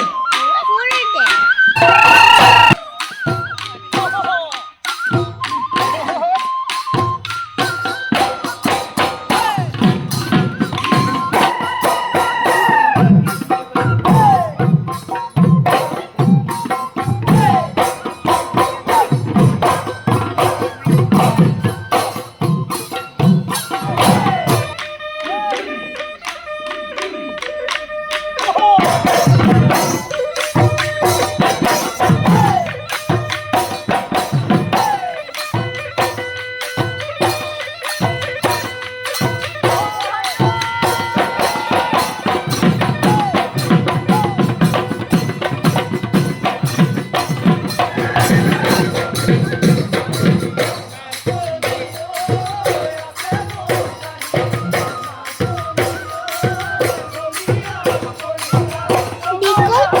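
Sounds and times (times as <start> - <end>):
jingling percussion: 0.0 - 60.0
person singing: 1.7 - 3.2, 47.9 - 60.0.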